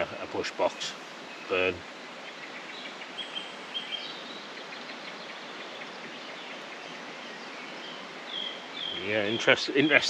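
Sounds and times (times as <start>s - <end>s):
faint bird chirps: 0.0s - 10.0s
outdoor background hiss: 0.0s - 10.0s.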